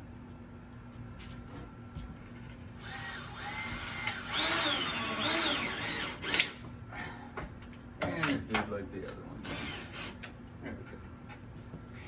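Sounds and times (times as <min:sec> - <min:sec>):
cordless drill motor whine: 0:02.8 - 0:06.6, 0:09.4 - 0:10.2.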